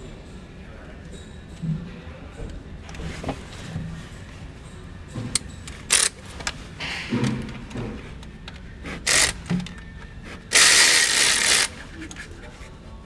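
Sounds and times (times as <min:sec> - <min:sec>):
hand tools clicking and knocking: 0:05.2 - 0:12.7.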